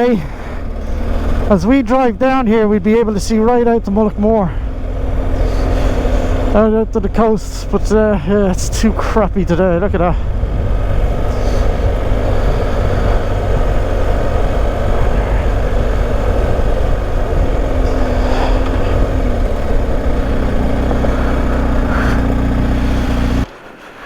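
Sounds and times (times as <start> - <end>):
motorcycle engine running: 0.0 - 23.5
road noise: 0.0 - 24.0.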